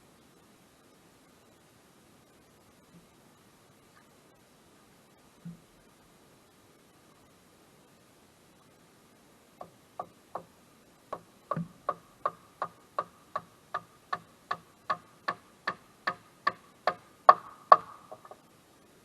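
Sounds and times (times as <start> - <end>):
sharp evenly spaced ticks: 9.6 - 18.6.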